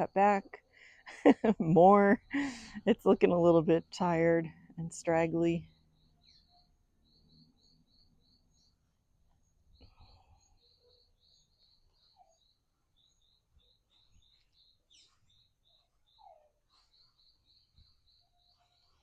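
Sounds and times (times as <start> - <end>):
faint bird chirping: 4.5 - 19.0.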